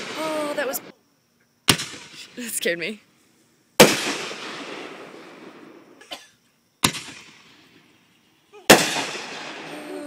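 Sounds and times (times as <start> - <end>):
fireworks bangs with echo: 0.0 - 0.9, 1.7 - 2.4, 3.8 - 5.9, 6.8 - 8.0, 8.7 - 10.0.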